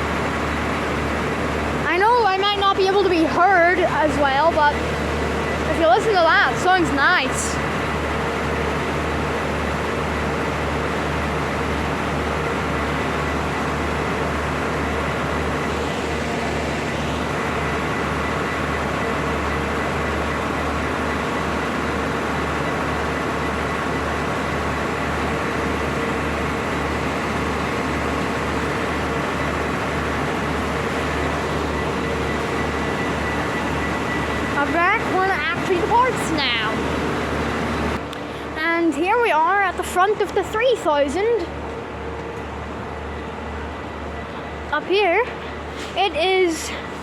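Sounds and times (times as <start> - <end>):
train diesel engine idling: 0.0 - 47.0.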